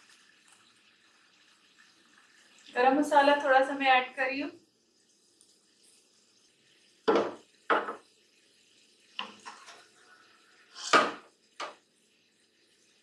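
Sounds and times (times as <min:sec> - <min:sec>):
spoon scraping against cookware: 0:09.2 - 0:09.9, 0:10.7 - 0:11.8.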